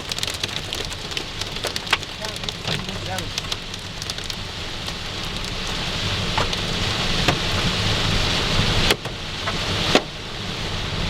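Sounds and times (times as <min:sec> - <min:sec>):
hailstones cracking on glass: 0:00.0 - 0:08.1
heavy rain and hail on a car: 0:00.0 - 0:11.0.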